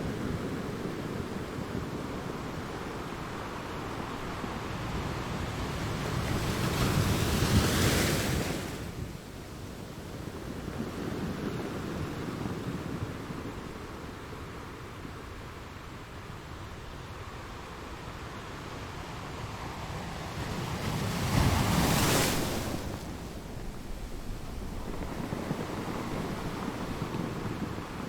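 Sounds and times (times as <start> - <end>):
ocean waves breaking: 19.4 - 28.0.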